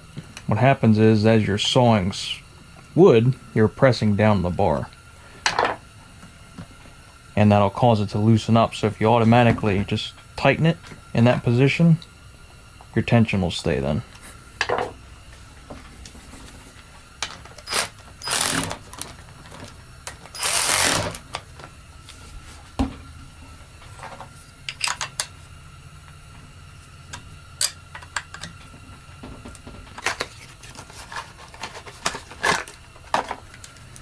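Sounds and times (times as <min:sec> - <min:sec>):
steady low hum: 0:00.0 - 0:34.0
clicks and knocks of tools: 0:24.0 - 0:25.4, 0:27.1 - 0:34.0.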